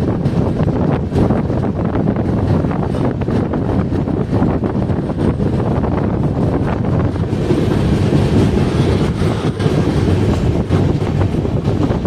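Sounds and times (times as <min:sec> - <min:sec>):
train clattering: 0:00.0 - 0:12.0
train rumbling on rails: 0:00.0 - 0:12.0
wind buffeting microphone: 0:00.0 - 0:12.0.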